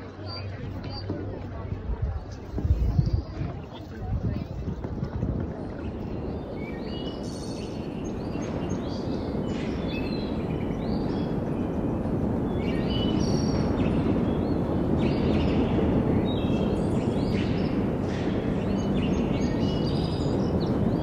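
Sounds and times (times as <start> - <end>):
birds chirping: 5.6 - 21.0.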